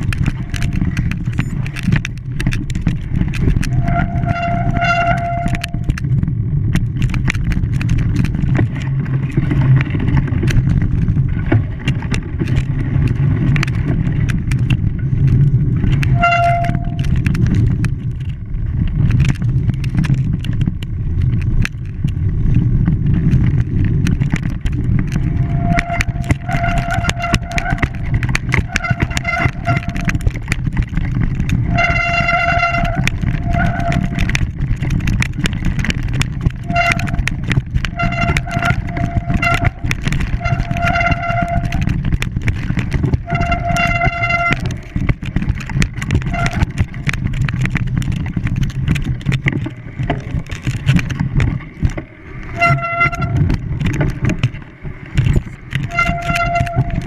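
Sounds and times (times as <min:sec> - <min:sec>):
scattered clicks: 0:00.0 - 0:57.0
steady low rumble: 0:00.0 - 0:57.0
horn tooting: 0:03.7 - 0:05.9, 0:16.1 - 0:17.2, 0:25.4 - 0:28.0, 0:31.7 - 0:34.3, 0:36.6 - 0:37.3, 0:37.9 - 0:41.9, 0:43.2 - 0:44.8, 0:52.6 - 0:53.6, 0:55.8 - 0:57.0.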